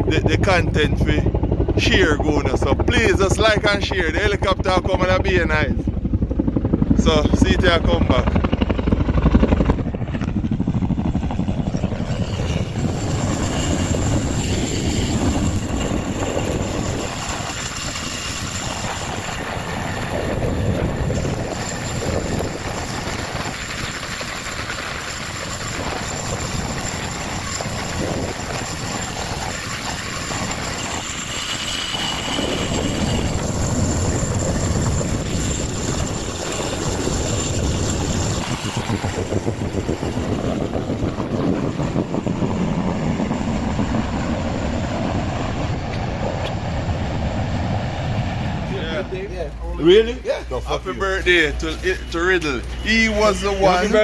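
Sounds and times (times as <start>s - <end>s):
helicopter rotor and engine: 0.0s - 54.0s
thin high whine: 48.7s - 54.0s.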